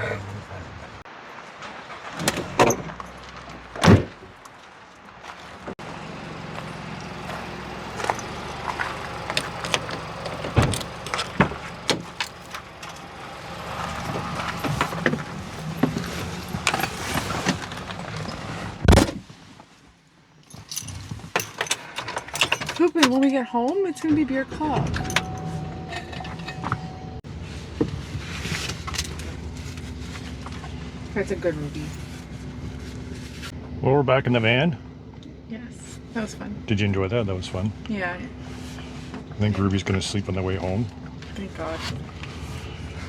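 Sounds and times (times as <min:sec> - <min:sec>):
knocks and clatter: 0:01.6 - 0:19.2.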